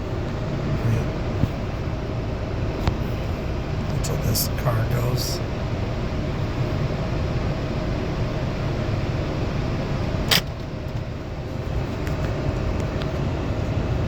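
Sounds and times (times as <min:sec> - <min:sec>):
car wash machinery running: 0:00.0 - 0:14.0
sharp click: 0:10.3 - 0:11.0.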